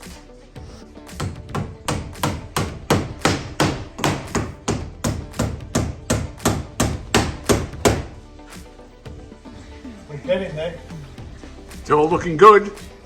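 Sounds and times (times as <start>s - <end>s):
hammer striking timber: 1.1s - 8.2s.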